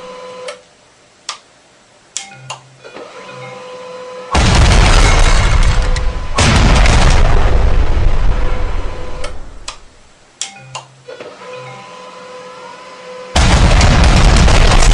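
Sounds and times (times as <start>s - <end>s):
loud explosion-like booms: 4.4s - 9.6s, 13.4s - 14.9s
sharp clicks: 9.2s - 9.8s.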